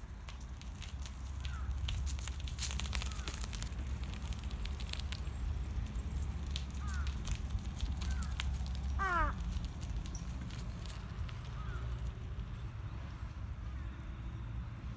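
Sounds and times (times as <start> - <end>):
crackling and rustling clicks: 0.0 - 12.7
distant crows cawing: 1.4 - 1.8, 3.1 - 3.4, 6.8 - 7.2, 8.0 - 9.5, 11.6 - 11.9.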